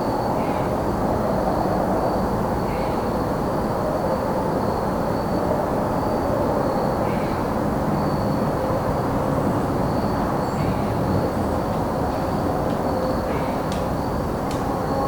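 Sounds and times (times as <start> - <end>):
crickets trilling: 4.8 - 15.0
distant traffic rumble: 7.5 - 15.0.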